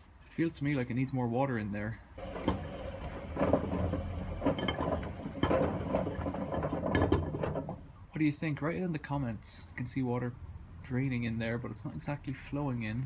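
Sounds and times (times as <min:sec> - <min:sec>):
soap bars knocking in drum: 0:02.2 - 0:07.8
washing machine motor hum: 0:02.2 - 0:07.9.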